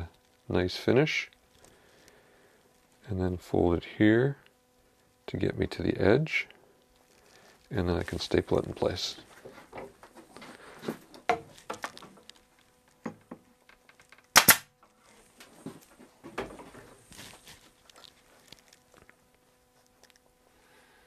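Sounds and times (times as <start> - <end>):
pneumatic stapler firing: 14.3 - 14.7.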